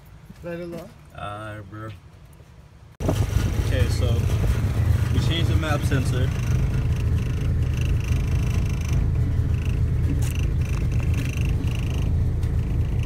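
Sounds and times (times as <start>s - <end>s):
car engine idling: 3.0s - 13.0s.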